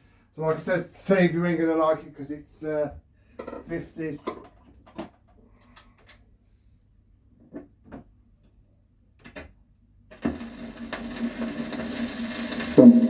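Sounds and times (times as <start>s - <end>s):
record deck clicks: 10.1s - 12.7s
stylus hiss with low hum: 10.1s - 13.0s.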